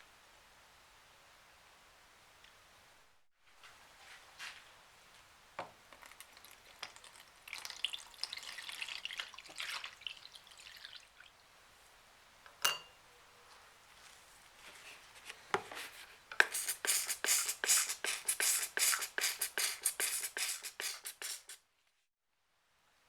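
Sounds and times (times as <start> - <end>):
metallic tap with ring: 12.6 - 13.0.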